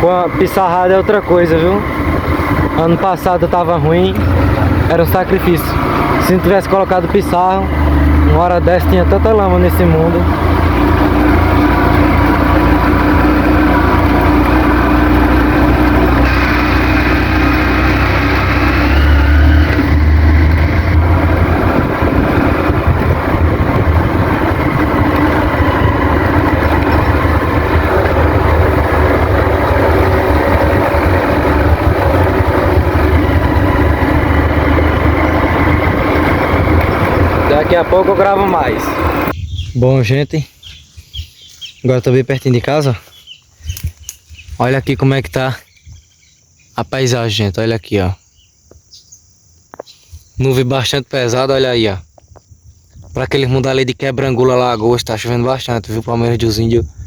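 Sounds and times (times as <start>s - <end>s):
wind rumble on microphone: 0.0s - 6.5s, 19.6s - 40.1s, 40.7s - 41.5s, 43.6s - 45.0s, 52.0s - 53.7s, 54.6s - 57.0s
motorcycle engine running: 0.0s - 39.4s.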